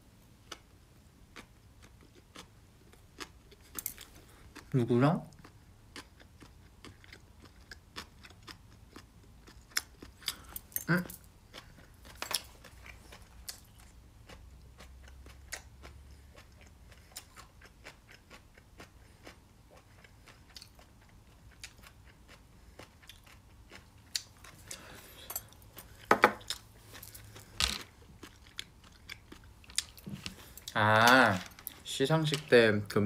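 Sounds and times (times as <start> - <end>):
person chewing: 0.4 - 4.7, 5.3 - 32.5.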